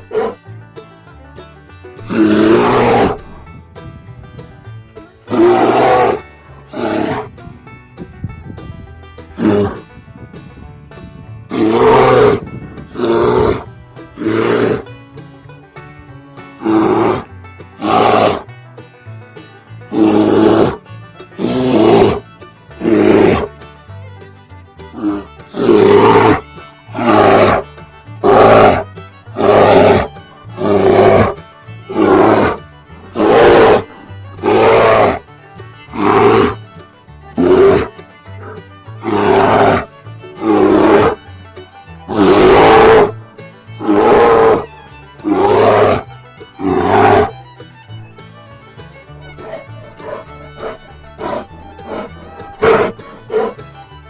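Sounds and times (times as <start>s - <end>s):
bear roaring: 0.0s - 0.4s, 2.1s - 3.3s, 5.3s - 7.3s, 9.4s - 9.8s, 11.5s - 14.9s, 16.6s - 18.5s, 19.9s - 20.8s, 21.4s - 22.2s, 22.8s - 23.5s, 24.9s - 36.6s, 37.4s - 41.2s, 42.1s - 43.2s, 43.8s - 47.4s, 49.4s - 53.6s
background music: 24.8s - 53.8s.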